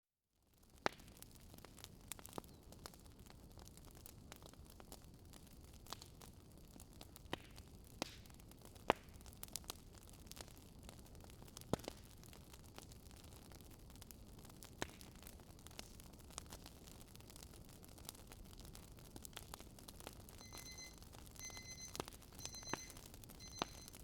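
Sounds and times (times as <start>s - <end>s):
wood fire crackling: 0.5s - 24.0s
faint steady hiss: 20.3s - 24.0s.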